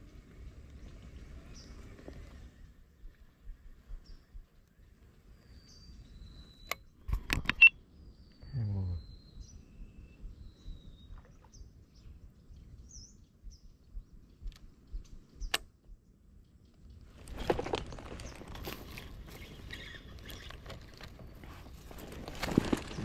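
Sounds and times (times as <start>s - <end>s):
small birds chirping faintly: 0.0s - 23.0s
sharp click: 15.4s - 15.7s
rustling: 17.1s - 23.0s.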